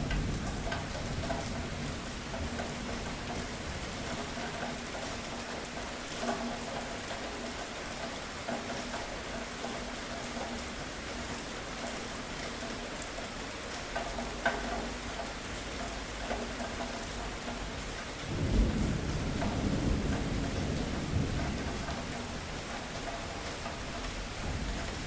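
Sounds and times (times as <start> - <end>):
low rumble of thunder: 0.0 - 7.2, 17.4 - 25.0
sharper raindrops: 0.0 - 25.0
steady rain falling: 0.0 - 25.0.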